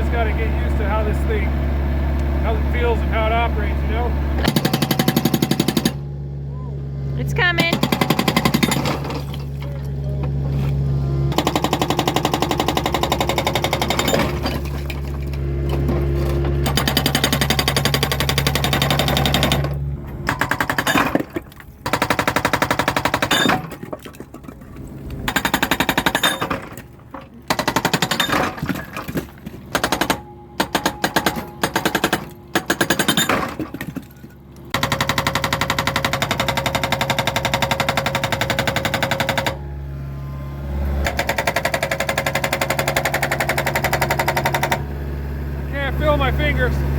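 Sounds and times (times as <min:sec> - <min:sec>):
excavator engine drone: 0:00.0 - 0:23.2, 0:29.4 - 0:32.9, 0:36.6 - 0:46.9
hydraulic breaker hammering rock: 0:04.4 - 0:06.1, 0:07.4 - 0:10.4, 0:11.3 - 0:24.6, 0:25.3 - 0:39.6, 0:41.0 - 0:44.9.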